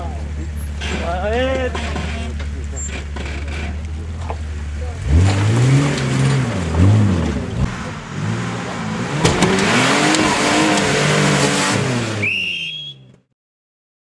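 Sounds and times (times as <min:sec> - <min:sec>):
off-road engine revving: 0:00.0 - 0:13.1
sharp knocks: 0:09.2 - 0:10.9.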